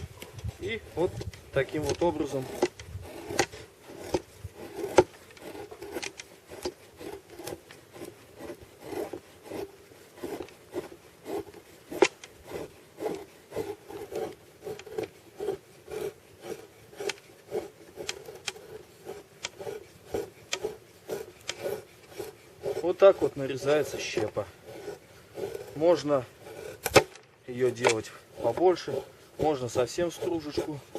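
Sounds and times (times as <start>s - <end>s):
knife scraping wood: 0.0s - 30.9s.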